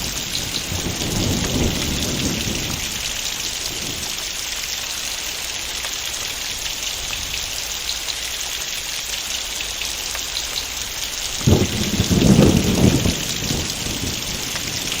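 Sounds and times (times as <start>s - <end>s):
thunder rumble: 0.0s - 4.2s, 11.4s - 15.0s
heavy rain: 0.0s - 15.0s.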